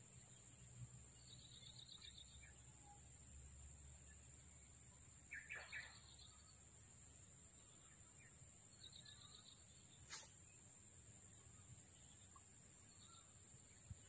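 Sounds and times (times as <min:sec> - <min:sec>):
bird chirps: 0:01.2 - 0:03.1, 0:05.2 - 0:06.7, 0:07.6 - 0:10.2, 0:11.5 - 0:14.0.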